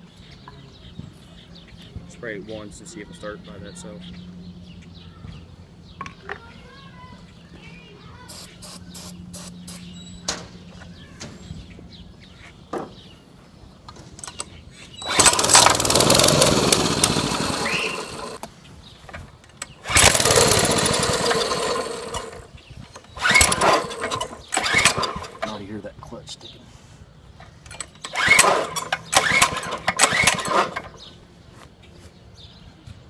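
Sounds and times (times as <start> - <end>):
engine sputter: 15.0 - 18.5, 19.6 - 25.6, 27.7 - 31.1
small engine running and dying: 15.0 - 18.5, 19.8 - 22.5, 23.1 - 25.6, 28.1 - 31.1.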